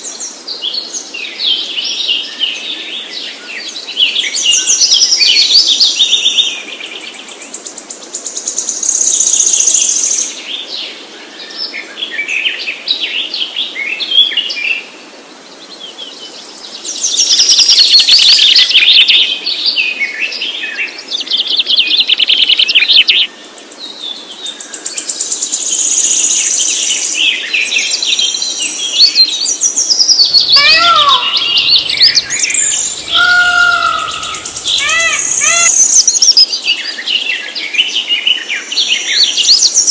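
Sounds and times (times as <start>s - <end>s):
birds singing and chirping: 15.7s - 39.9s
low swooping bird call: 30.0s - 36.1s.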